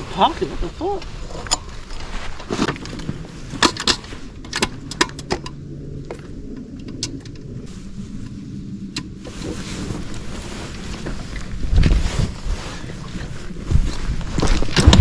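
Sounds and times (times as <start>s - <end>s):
low engine hum: 0.0s - 15.0s
sharp clicks and knocks: 3.6s - 7.5s.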